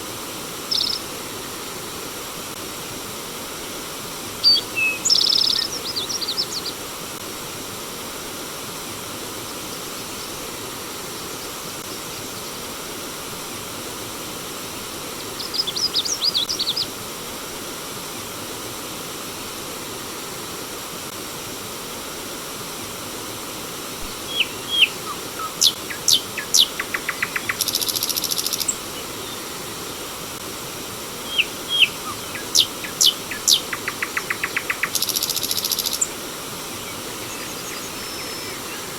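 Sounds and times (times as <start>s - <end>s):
stream running water: 0.0s - 38.9s
birds chirping: 0.7s - 1.0s, 24.2s - 29.7s, 31.2s - 38.9s.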